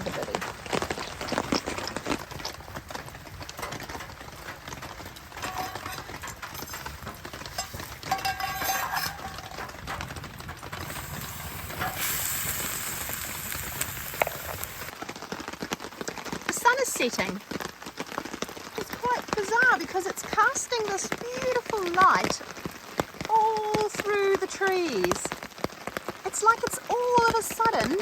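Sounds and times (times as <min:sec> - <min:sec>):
rain falling: 0:00.0 - 0:28.0
wood fire crackling: 0:00.0 - 0:28.0
hiss: 0:10.8 - 0:14.9.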